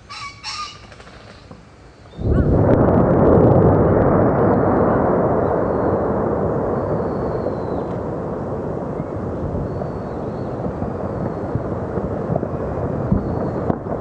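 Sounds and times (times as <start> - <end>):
volcanic eruption rumbling roar: 2.1 - 14.0.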